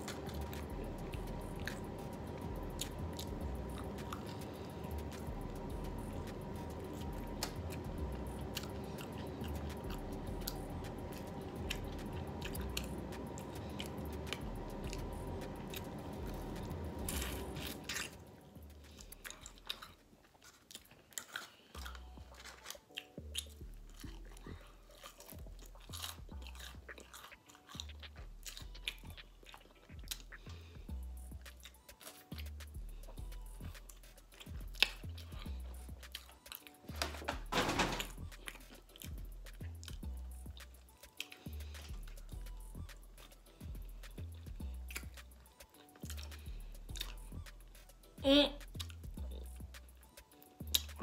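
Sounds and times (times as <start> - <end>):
background music: 0.0 - 51.0
chewing and biting: 0.0 - 51.0
wet mouth clicks: 50.6 - 51.0.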